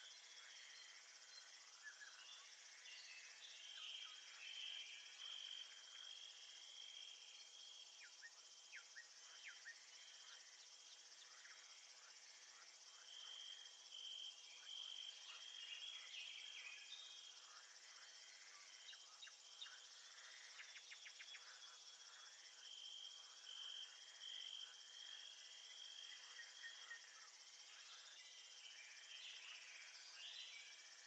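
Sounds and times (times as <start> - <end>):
insects trilling: 0.0 - 31.0.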